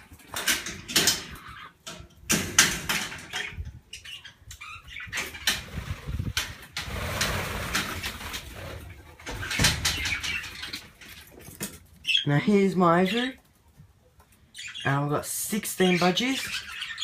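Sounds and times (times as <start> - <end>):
wire mesh rattling: 0.0 - 3.8.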